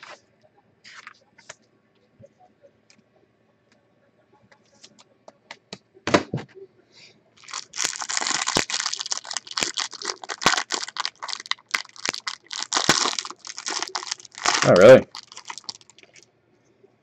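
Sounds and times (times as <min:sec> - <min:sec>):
wrapper crinkling and tearing: 0:07.4 - 0:16.2.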